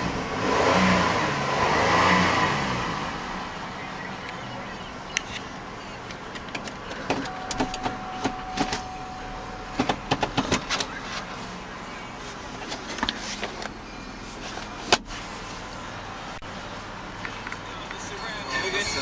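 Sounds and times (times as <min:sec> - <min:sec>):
car doors and controls clicking: 0:04.2 - 0:11.2
steady single tone: 0:07.3 - 0:10.0.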